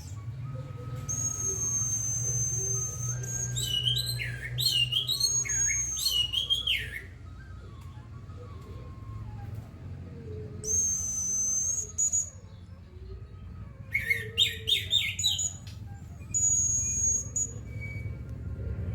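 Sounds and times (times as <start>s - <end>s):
bird chirping: 0.0s - 8.6s, 10.6s - 12.7s, 14.0s - 18.2s
thrush singing high whistles: 0.0s - 9.9s, 10.6s - 12.7s, 13.8s - 18.3s.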